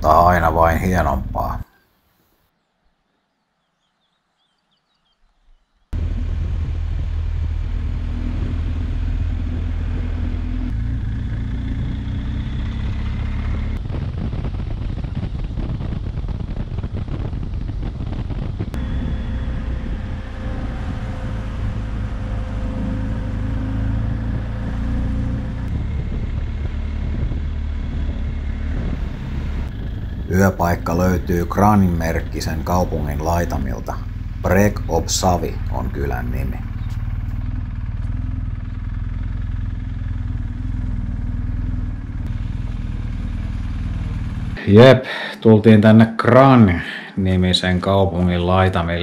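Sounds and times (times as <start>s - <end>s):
motorcycle engine running: 5.9s - 44.6s
wind rush: 12.8s - 37.3s.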